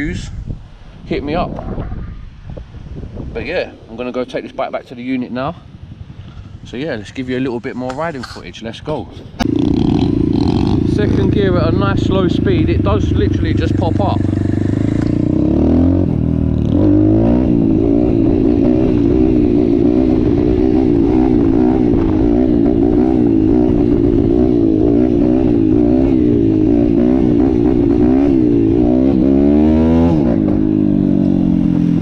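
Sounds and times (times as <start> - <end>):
pit bike engine revving: 9.4 - 32.0.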